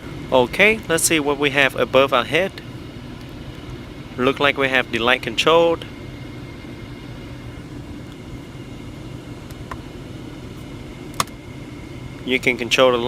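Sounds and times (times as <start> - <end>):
car cabin hum at idle: 0.0 - 13.0.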